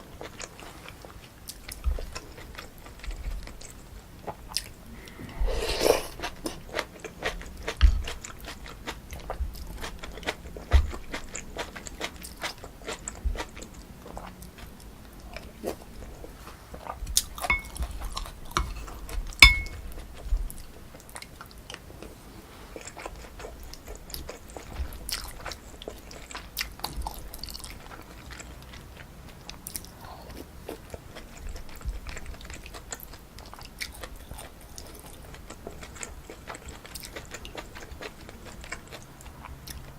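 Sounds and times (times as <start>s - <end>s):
wet chewing with crunchy clicks: 0.0s - 5.2s, 6.1s - 22.2s, 22.8s - 39.9s
utensil clinking against dish: 17.4s - 17.9s, 19.4s - 19.8s.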